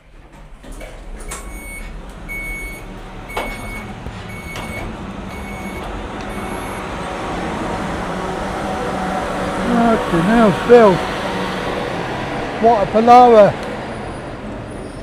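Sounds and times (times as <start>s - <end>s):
electronic warning beeper: 1.3s - 6.9s.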